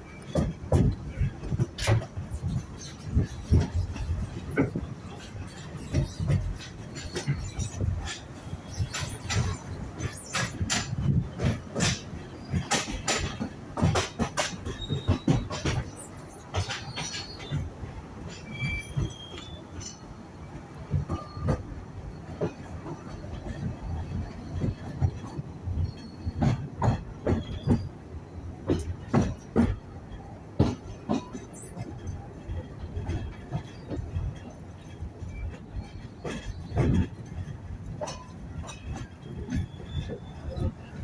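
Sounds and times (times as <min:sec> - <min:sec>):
railway carriages rumbling: 0:00.0 - 0:41.0
knocks and rattles: 0:00.2 - 0:17.7, 0:33.0 - 0:41.0
wheel squeals: 0:00.2 - 0:21.7, 0:22.8 - 0:29.9, 0:30.6 - 0:41.0.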